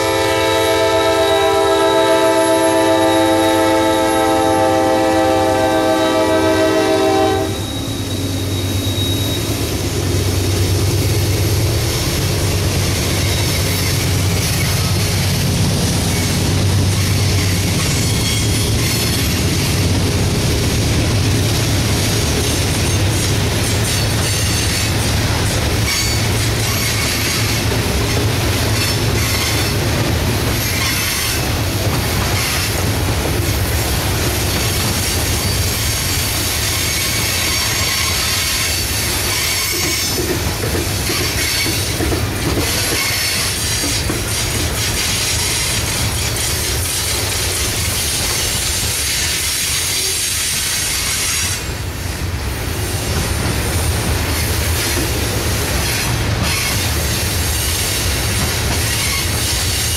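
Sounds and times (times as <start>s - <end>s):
freight train wheels rumbling: 0.0s - 59.9s
high-pitched wheel squeal: 7.4s - 9.8s, 16.1s - 19.6s, 35.4s - 40.2s
wheels clattering over rail joints: 36.8s - 49.5s.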